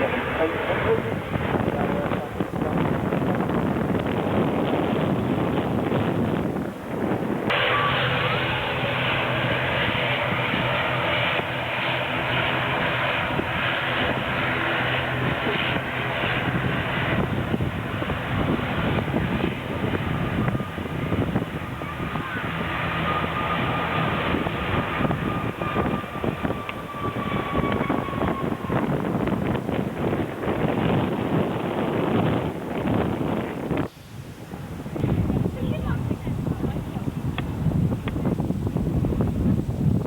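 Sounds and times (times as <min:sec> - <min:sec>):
airliner engines humming: 0:00.0 - 0:40.0
high whine falling in pitch: 0:07.4 - 0:35.4.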